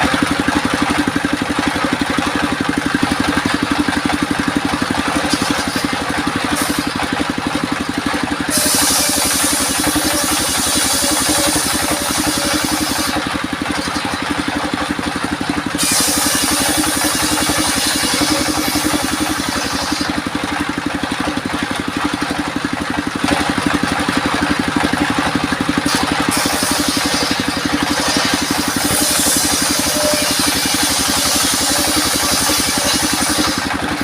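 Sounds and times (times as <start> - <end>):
engine-driven sawmill running: 0.0 - 34.0
saw hissing through wood: 4.0 - 7.4, 8.0 - 20.8, 25.8 - 34.0.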